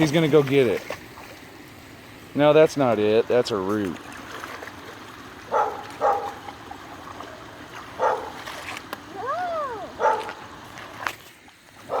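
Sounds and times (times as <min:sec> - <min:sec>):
dog barking: 0:05.5 - 0:06.4, 0:08.0 - 0:08.4, 0:10.0 - 0:10.4.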